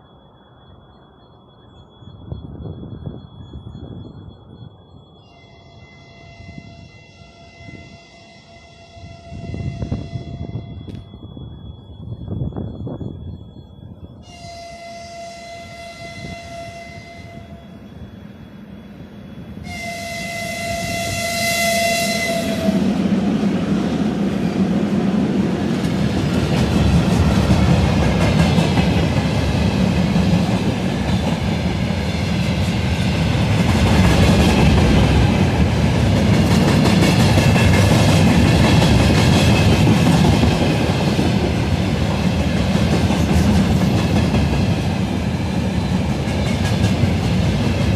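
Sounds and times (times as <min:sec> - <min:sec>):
train rumbling past: 0:00.0 - 0:47.9
locomotive horn blasts: 0:05.3 - 0:11.0, 0:14.2 - 0:17.8, 0:19.6 - 0:22.9.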